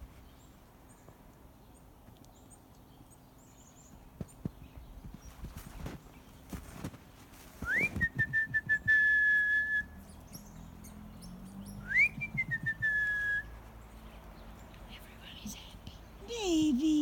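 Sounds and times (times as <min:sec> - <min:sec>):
person whistling rising calls: 0:07.6 - 0:10.0, 0:11.7 - 0:13.6.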